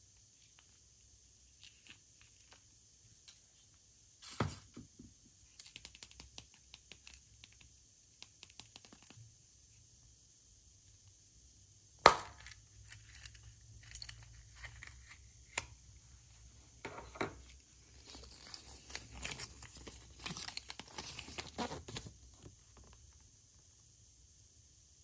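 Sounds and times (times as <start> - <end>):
wrapping crinkling and tearing: 17.9 - 22.1.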